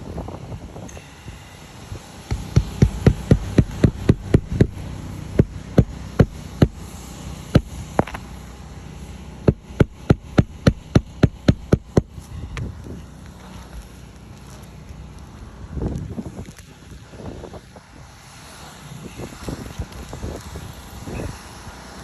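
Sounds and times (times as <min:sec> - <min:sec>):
sharp knocks: 0:08.0 - 0:08.5.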